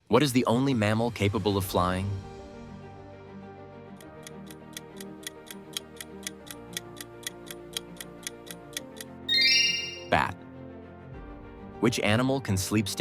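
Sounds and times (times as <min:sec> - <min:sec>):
soft background music: 0:01.4 - 0:13.0
bright chime: 0:09.3 - 0:10.2.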